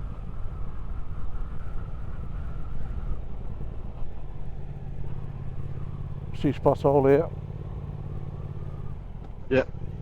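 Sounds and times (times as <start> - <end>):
wind noise: 0.0 - 5.7
motorcycle engine running: 0.0 - 10.0.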